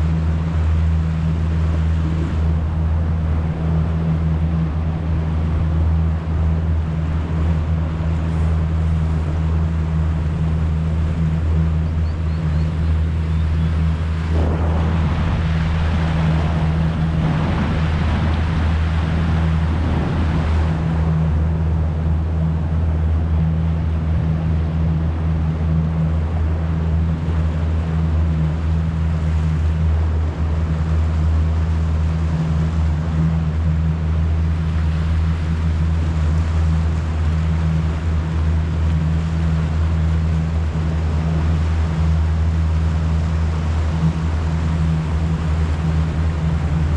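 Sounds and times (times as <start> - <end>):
motor humming steadily: 0.0 - 46.9
rushing noise: 13.7 - 20.9.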